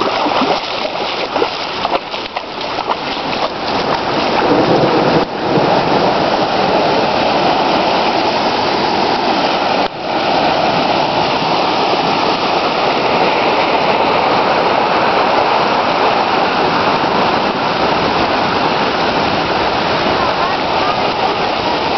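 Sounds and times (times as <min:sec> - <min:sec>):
rushing water: 0:00.0 - 0:21.9.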